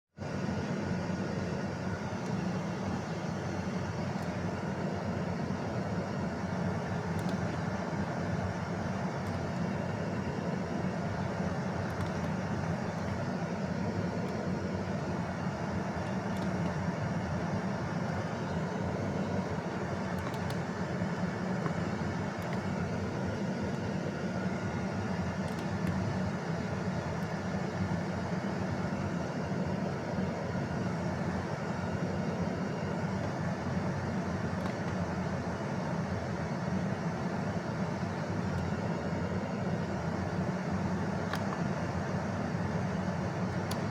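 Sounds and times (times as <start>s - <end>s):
faint clicks: 7.2s - 7.6s, 11.8s - 13.2s, 41.3s - 41.6s.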